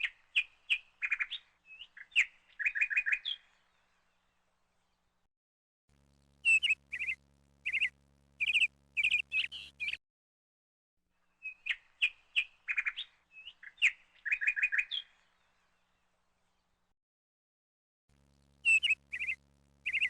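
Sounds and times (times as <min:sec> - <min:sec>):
songbird chirping: 0:00.0 - 0:05.2, 0:06.2 - 0:10.0, 0:11.2 - 0:16.9, 0:18.4 - 0:20.0.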